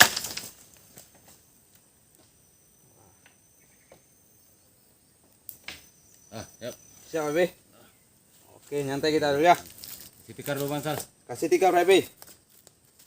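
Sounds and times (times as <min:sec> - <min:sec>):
knock and rustle of wooden poles: 0:00.0 - 0:01.4
forest insects calling: 0:00.0 - 0:13.0.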